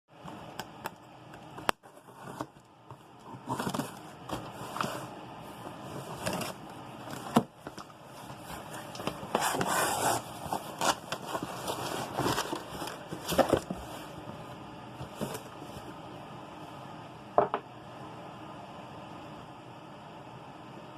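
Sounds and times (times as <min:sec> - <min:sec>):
packaging rustling and scraping: 0:01.8 - 0:15.9.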